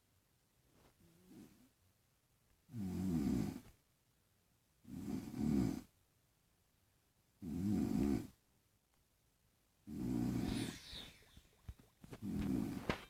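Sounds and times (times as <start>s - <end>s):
person snoring: 9.9s - 11.6s.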